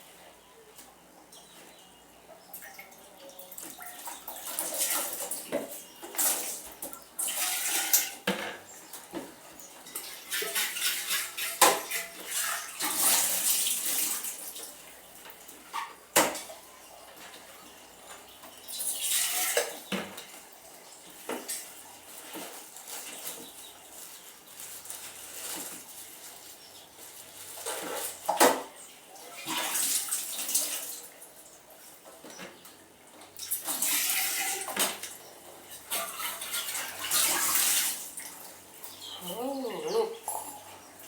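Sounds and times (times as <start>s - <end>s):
water splashing in a basin: 29.2s - 31.3s, 33.4s - 35.2s, 35.8s - 40.6s.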